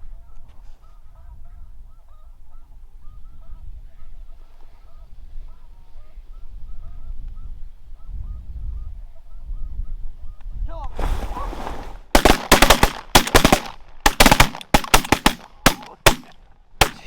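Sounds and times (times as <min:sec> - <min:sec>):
wind rumble on microphone: 0:00.0 - 0:12.2.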